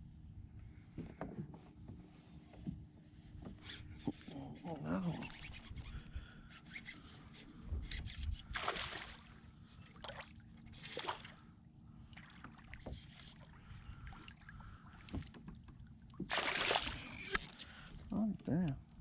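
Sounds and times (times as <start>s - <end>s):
low steady hum: 0.0s - 19.0s
water splashing against kayak: 8.5s - 18.0s.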